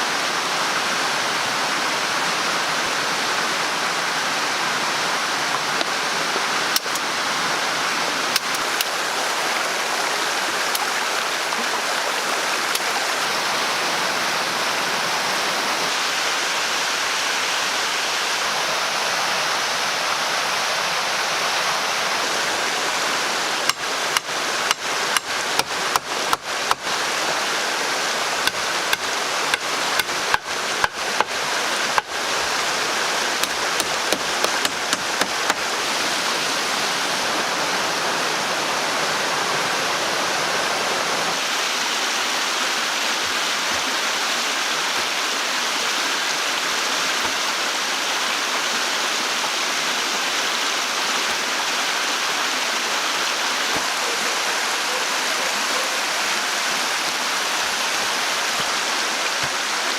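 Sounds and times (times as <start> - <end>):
running water rushing: 0.0 - 59.9
tool striking wood: 23.7 - 26.8, 28.4 - 31.3, 33.4 - 35.6.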